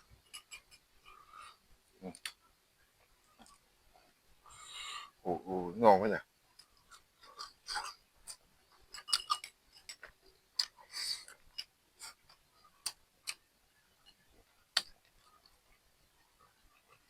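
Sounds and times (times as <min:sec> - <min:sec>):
utensils clicking on dishes: 0:08.3 - 0:10.1.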